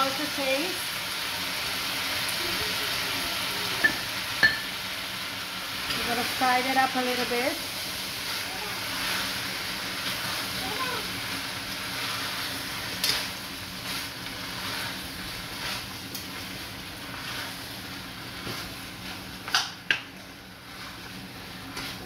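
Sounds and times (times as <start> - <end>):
food sizzling in oil: 0.0 - 22.0
spoon knocking against pot: 3.8 - 4.7.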